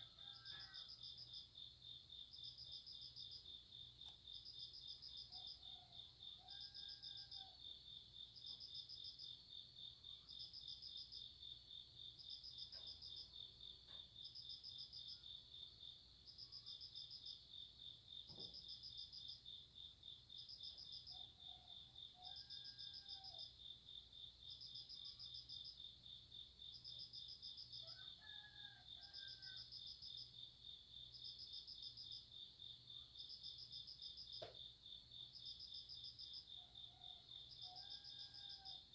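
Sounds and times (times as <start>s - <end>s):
distant rooster crowing: 0.0s - 1.2s, 5.3s - 7.7s, 21.2s - 23.5s, 27.8s - 29.8s, 36.6s - 38.9s
insect chirping: 0.1s - 38.9s.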